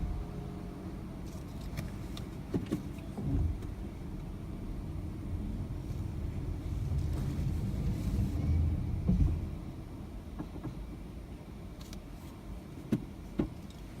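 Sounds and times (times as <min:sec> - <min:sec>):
car stopping thump: 0:08.4 - 0:09.6.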